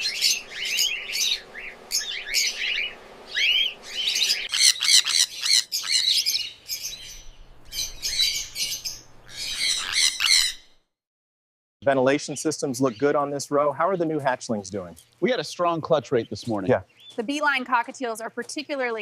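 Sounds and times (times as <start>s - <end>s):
cockatiels chirping: 0.0s - 10.7s.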